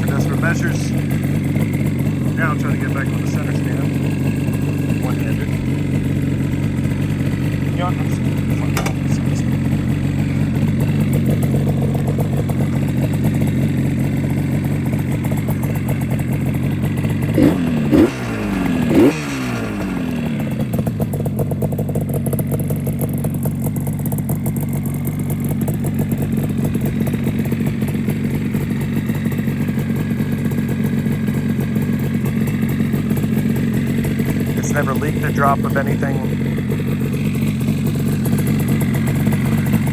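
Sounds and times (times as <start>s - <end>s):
engine revving: 0.0s - 22.3s, 32.4s - 39.9s
two-stroke motorcycle engine idling: 0.0s - 39.9s.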